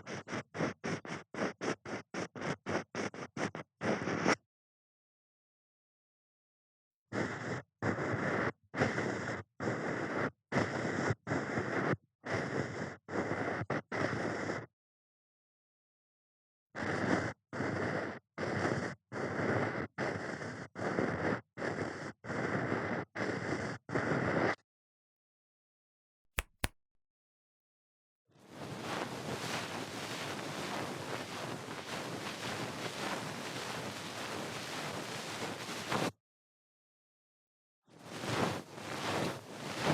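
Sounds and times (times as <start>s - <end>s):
ear pick scraping microphone: 28.5s - 36.1s, 38.0s - 39.9s.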